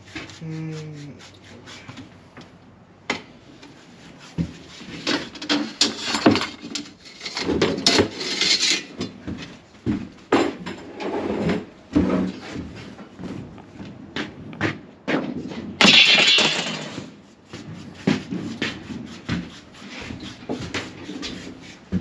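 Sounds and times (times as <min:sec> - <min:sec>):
paint applicator scraping: 0:00.0 - 0:02.3, 0:17.5 - 0:21.8.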